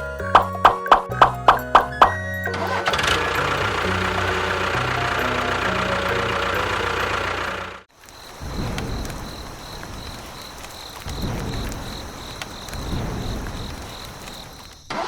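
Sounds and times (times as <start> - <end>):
small engine running: 1.2 - 7.9
insect chirping: 3.4 - 15.0.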